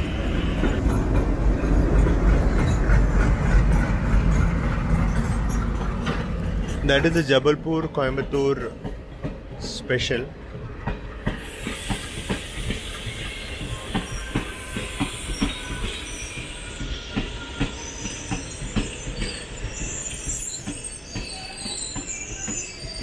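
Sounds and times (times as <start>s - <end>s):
train wheels clattering over rail joints: 0.0s - 23.0s
high wheel squeal: 11.4s - 23.0s.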